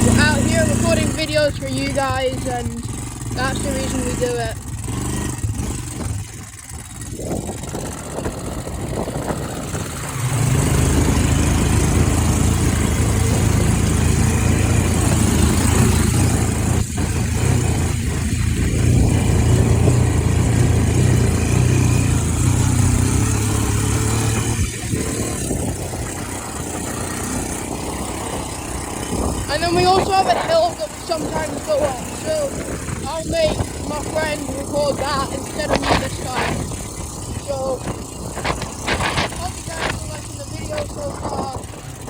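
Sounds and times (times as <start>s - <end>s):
quad bike engine running: 0.0s - 42.0s.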